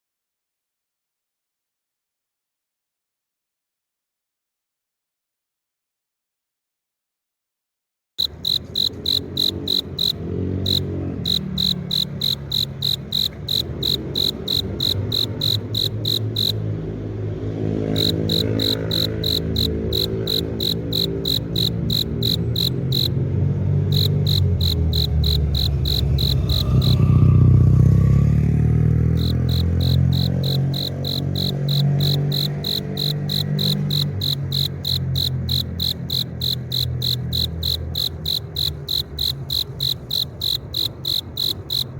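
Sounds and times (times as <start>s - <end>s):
cricket chirping: 8.2s - 16.6s, 17.9s - 23.2s, 23.8s - 27.4s, 29.0s - 41.9s.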